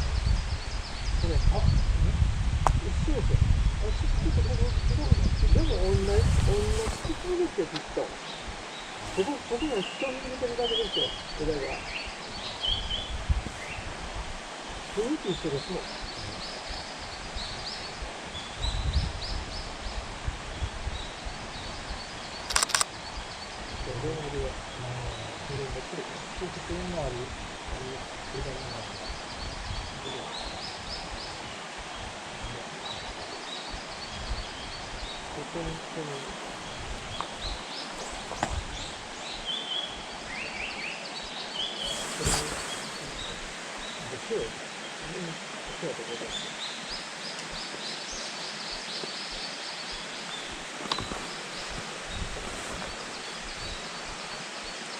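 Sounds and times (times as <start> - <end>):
songbird singing: 0.0 - 54.9
sharp clicks: 22.5 - 22.9.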